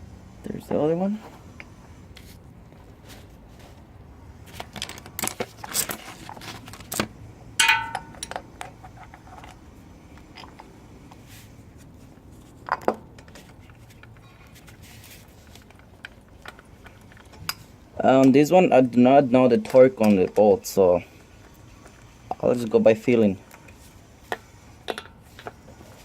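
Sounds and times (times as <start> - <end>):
ringing metallic clink: 7.6 - 8.3
metal tools clicking and clattering: 7.6 - 9.6.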